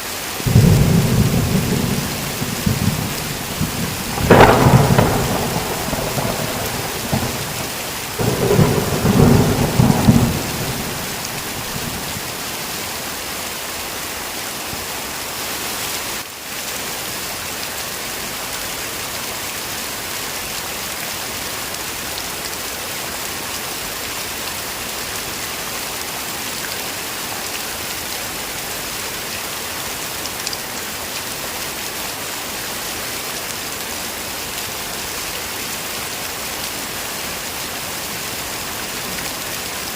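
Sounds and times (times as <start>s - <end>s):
heavy rain falling: 0.0s - 39.9s
thunder rumbling: 0.5s - 12.7s.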